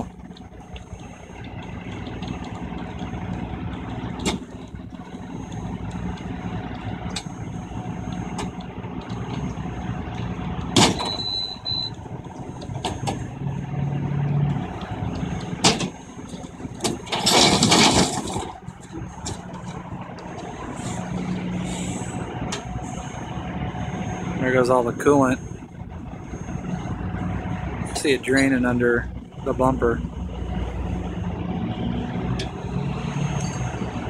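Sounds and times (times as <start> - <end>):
diesel truck engine idling: 0.0 - 34.0.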